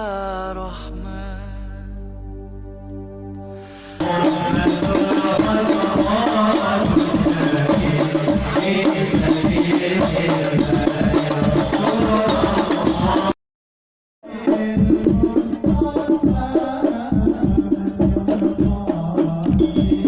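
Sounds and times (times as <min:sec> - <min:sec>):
frame drums playing fast rhythm: 0:04.0 - 0:13.4, 0:14.2 - 0:20.0.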